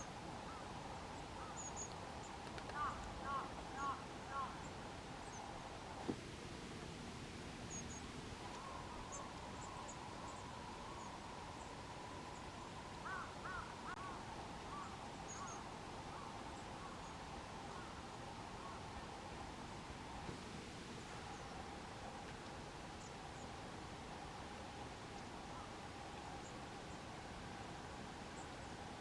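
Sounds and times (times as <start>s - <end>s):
lower arched bird calls: 0.4s - 5.6s, 7.7s - 18.9s.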